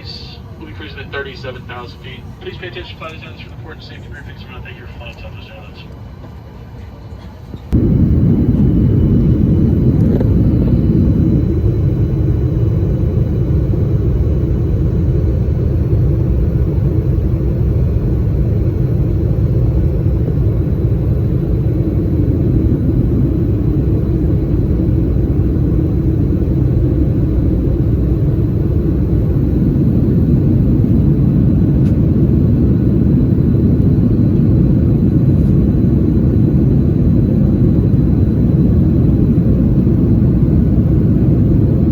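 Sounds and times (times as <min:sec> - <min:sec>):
jet cabin engine rumble: 0:00.0 - 0:41.9.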